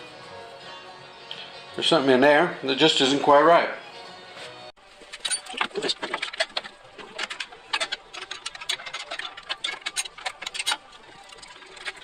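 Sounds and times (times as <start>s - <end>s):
rapid metallic clicking: 5.2s - 12.0s.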